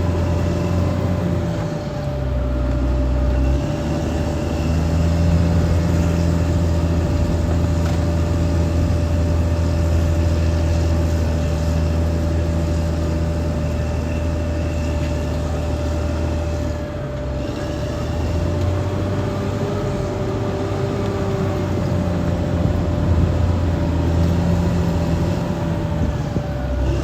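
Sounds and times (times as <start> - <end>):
bulldozer diesel engine running: 0.0 - 27.0
steady whine: 0.0 - 27.0.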